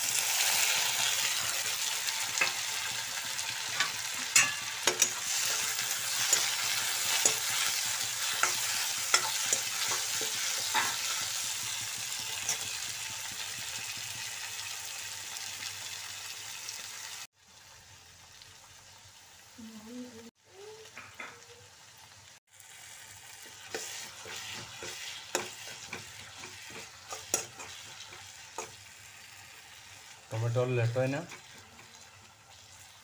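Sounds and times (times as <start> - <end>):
vegetables sizzling in oil: 0.0 - 33.0
spatula scraping a pan: 0.3 - 12.8, 23.3 - 28.9, 29.8 - 33.0.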